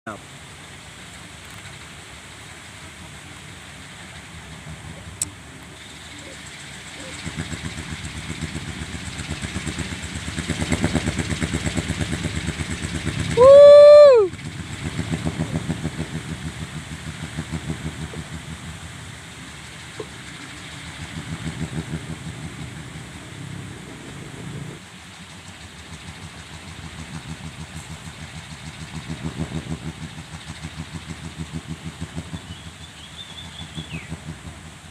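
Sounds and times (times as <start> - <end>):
high whistle: 13.4 - 14.3
windmill clappers knocking: 14.3 - 34.9.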